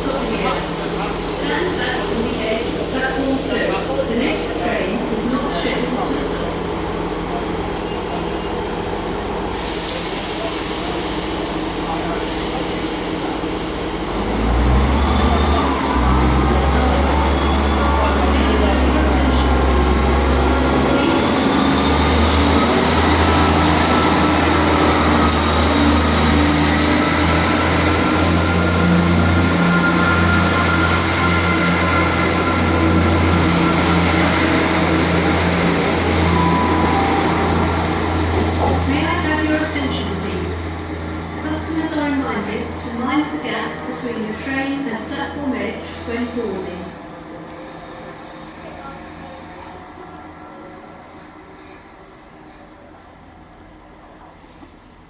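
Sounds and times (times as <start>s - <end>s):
diesel train engines droning: 0.0s - 55.0s
steady higher tones: 22.6s - 42.2s.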